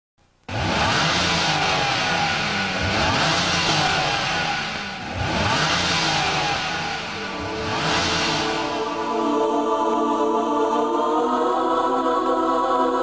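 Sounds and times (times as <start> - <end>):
car engine accelerating hard: 0.5 - 9.4.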